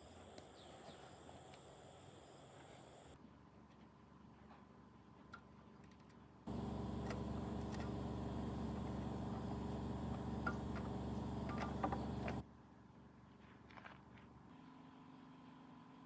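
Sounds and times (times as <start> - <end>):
small motor humming: 6.5 - 12.4.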